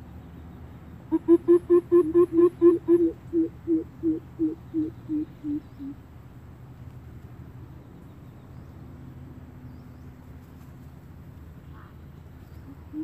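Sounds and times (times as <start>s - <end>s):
steady low hum: 0.0s - 13.0s
bird hooting: 1.1s - 6.0s, 12.6s - 13.0s.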